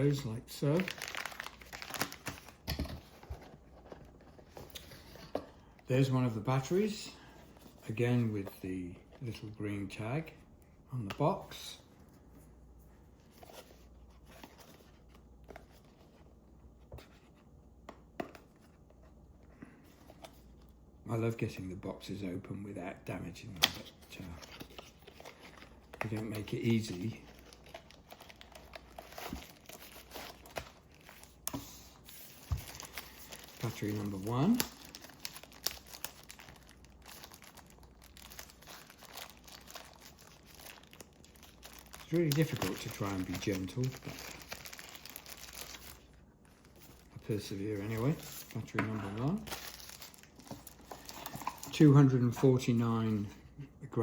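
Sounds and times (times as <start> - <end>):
packaging crinkling and rustling: 0.0 - 5.3, 23.8 - 52.5.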